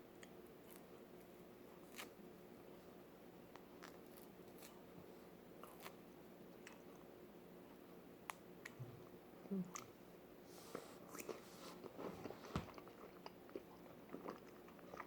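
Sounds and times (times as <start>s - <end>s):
low room hum: 0.0s - 15.0s
person chewing wetly: 6.6s - 7.0s, 11.1s - 15.0s.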